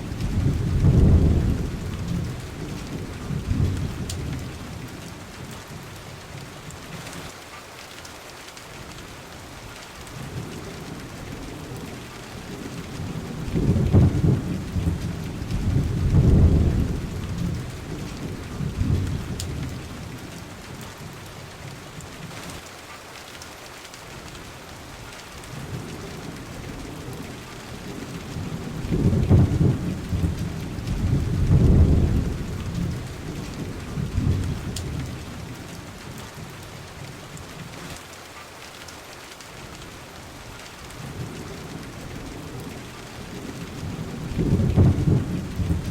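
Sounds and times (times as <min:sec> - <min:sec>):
rolling thunder: 0:00.0 - 0:04.6, 0:11.3 - 0:20.1, 0:27.8 - 0:35.5, 0:43.3 - 0:45.9
steady rain: 0:00.0 - 0:45.9.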